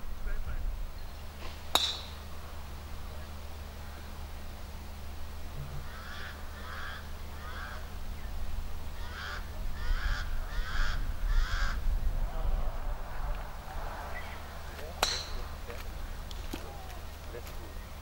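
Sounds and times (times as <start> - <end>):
bird calling: 5.5 - 12.5, 13.4 - 18.0.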